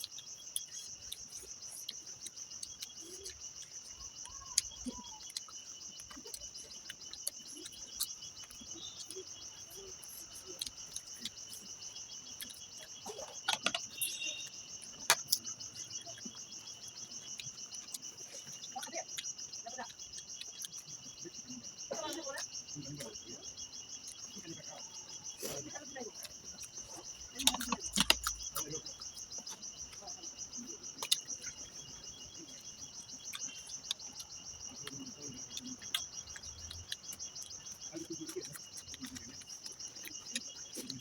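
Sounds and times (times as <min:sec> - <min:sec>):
crickets trilling: 0:00.0 - 0:41.0
eating sounds: 0:00.0 - 0:41.0.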